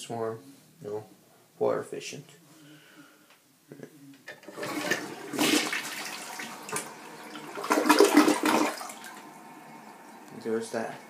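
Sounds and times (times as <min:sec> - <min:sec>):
toilet flushing: 0:04.3 - 0:10.2.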